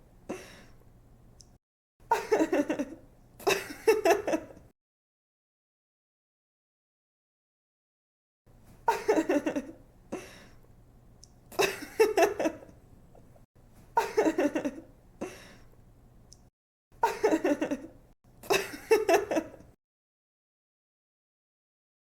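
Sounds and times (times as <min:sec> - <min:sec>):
young woman giggling: 0:02.1 - 0:04.6, 0:08.9 - 0:09.8, 0:11.6 - 0:12.7, 0:14.0 - 0:14.9, 0:17.0 - 0:19.7.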